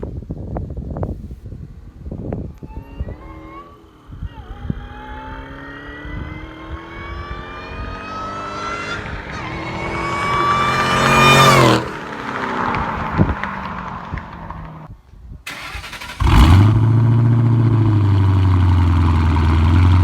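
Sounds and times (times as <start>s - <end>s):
car engine accelerating hard: 2.6s - 14.7s, 15.5s - 20.0s.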